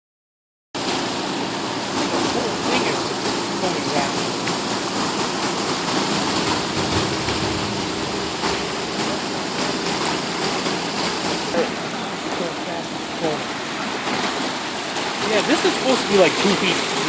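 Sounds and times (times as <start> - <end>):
floodwater rushing in a creek: 0.8 - 17.0.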